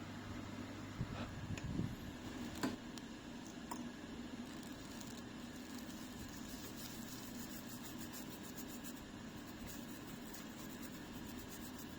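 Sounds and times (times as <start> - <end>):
faint low hum: 0.0 - 11.9
light ticks and scratches: 4.5 - 11.9.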